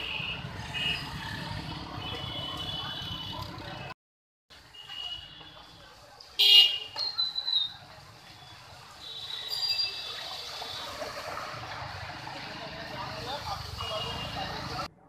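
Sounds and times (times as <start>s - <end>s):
street ambience: 0.0s - 15.0s
vehicle horns honking: 1.9s - 3.6s, 6.4s - 7.0s.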